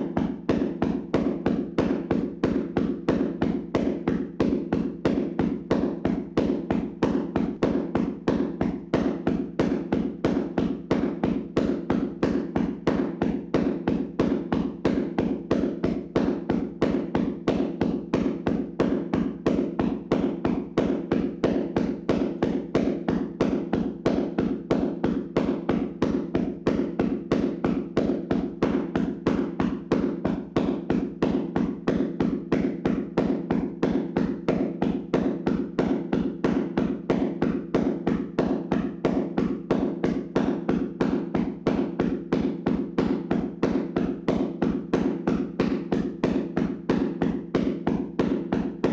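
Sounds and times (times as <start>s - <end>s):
hands slapping on body: 0.0s - 48.9s.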